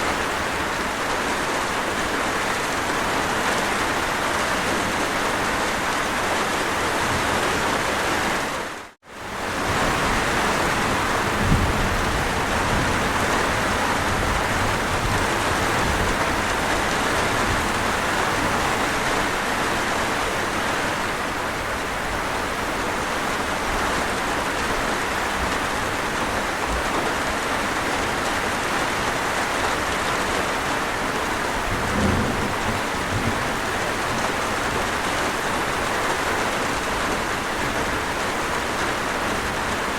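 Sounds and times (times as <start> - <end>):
heavy rain: 0.0 - 39.9
distant thunder rumbles: 9.7 - 19.0, 31.4 - 35.4.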